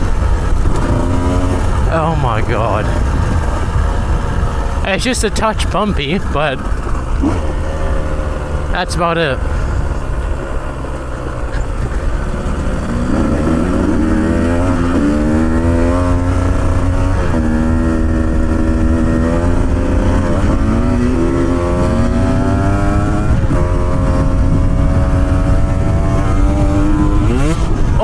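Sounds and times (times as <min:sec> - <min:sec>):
low engine rumble: 0:00.0 - 0:14.1
motorcycle engine revving: 0:00.0 - 0:28.0.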